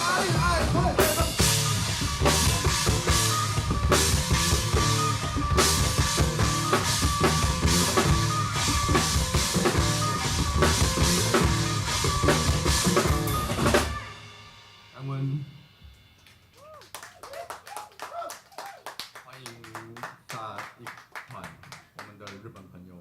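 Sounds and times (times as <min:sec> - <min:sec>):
bass drum: 0:00.0 - 0:14.1
rock band playing live: 0:00.0 - 0:16.5.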